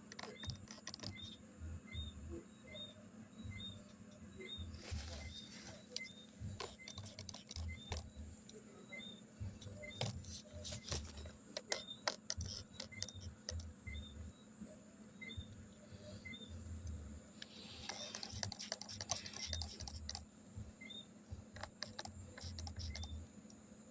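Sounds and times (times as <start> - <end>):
steady low hum: 0.0 - 23.9
faint high chirp: 0.1 - 20.2, 20.8 - 23.3.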